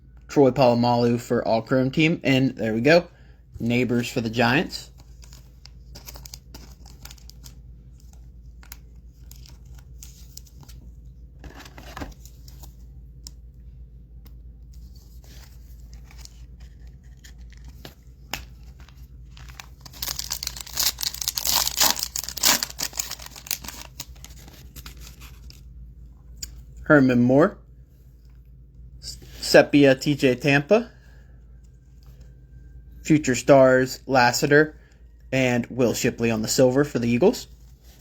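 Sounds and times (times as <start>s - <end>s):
cards clicking and rustling: 4.9s - 10.8s, 14.2s - 25.6s
foil pack tearing open: 19.4s - 25.5s.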